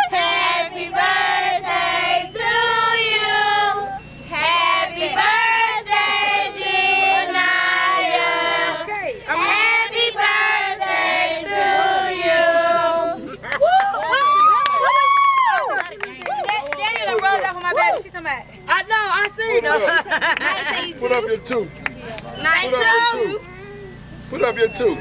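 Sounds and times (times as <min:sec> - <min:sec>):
children and women singing: 0:00.0 - 0:13.4.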